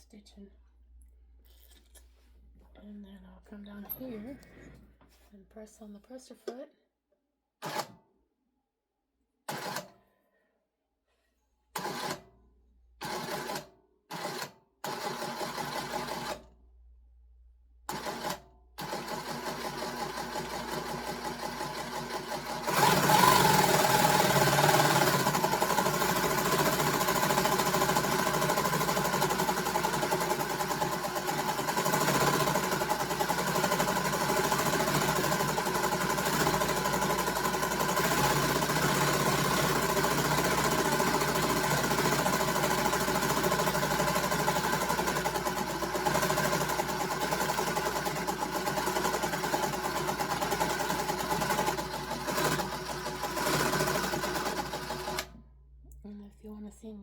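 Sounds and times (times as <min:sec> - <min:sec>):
industrial sewing machine running: 0:09.5 - 0:09.9, 0:13.0 - 0:16.4, 0:17.9 - 0:55.3.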